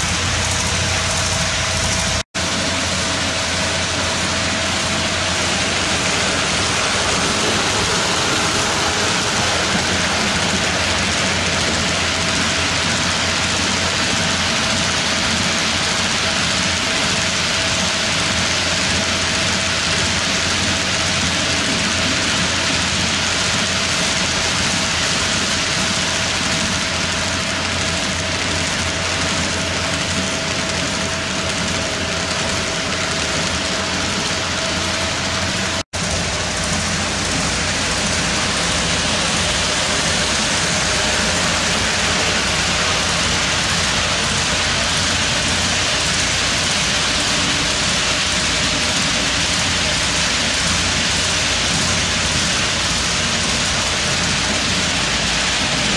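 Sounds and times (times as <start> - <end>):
faint steady whine: 0.0 - 55.9
model train wheels rolling on rails: 0.0 - 55.9.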